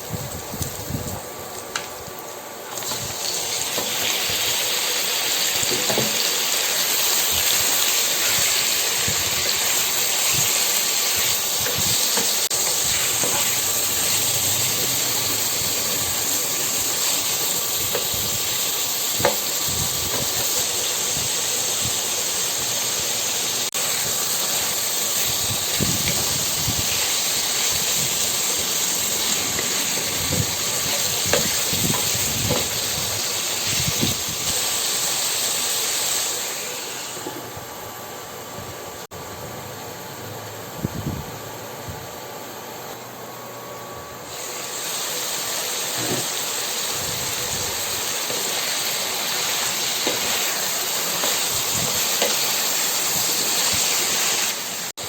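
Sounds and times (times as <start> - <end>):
food sizzling in hot oil: 0.0 - 37.6, 44.2 - 55.0.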